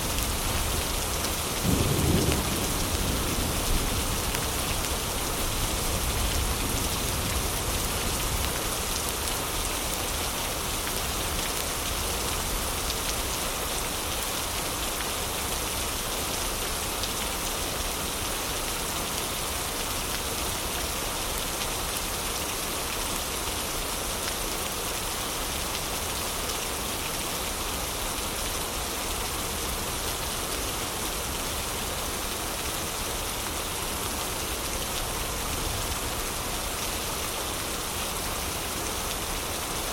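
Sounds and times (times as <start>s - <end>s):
heavy rain: 0.0s - 39.9s
thunder rumble: 1.7s - 4.6s.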